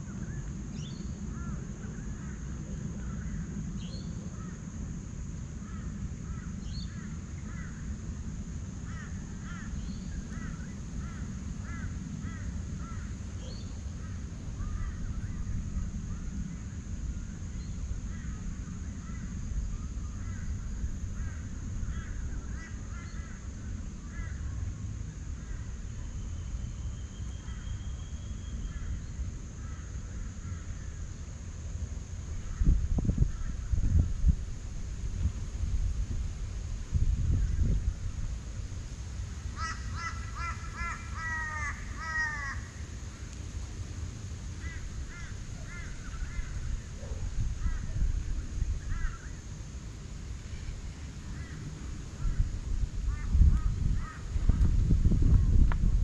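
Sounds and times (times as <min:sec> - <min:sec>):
steady low rumble: 0:00.0 - 0:56.0
crow-like caws: 0:01.3 - 0:03.5, 0:05.6 - 0:07.9, 0:08.8 - 0:15.2, 0:18.1 - 0:19.4, 0:20.2 - 0:24.7, 0:29.6 - 0:31.0, 0:39.5 - 0:43.1, 0:44.6 - 0:48.1, 0:48.8 - 0:49.4, 0:51.3 - 0:54.6.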